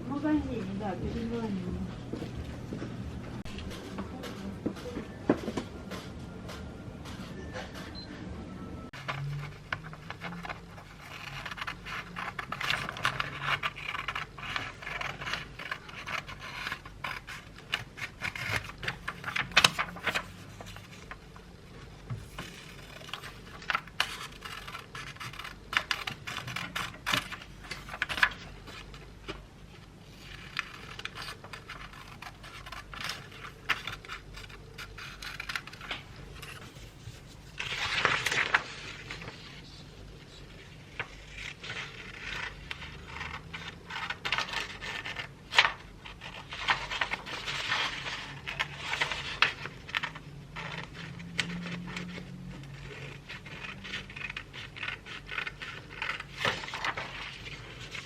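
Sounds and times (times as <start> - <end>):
scraping and scratching: 22.1 - 29.4.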